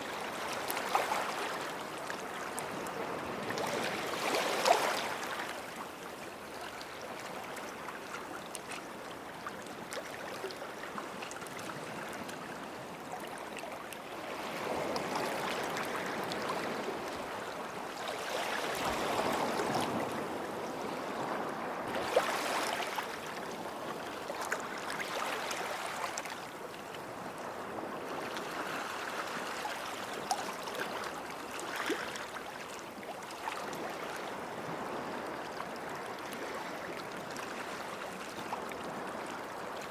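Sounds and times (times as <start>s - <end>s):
faint water splashes and trickles: 0.0s - 39.9s
waves washing onto sandy shore: 10.6s - 39.9s.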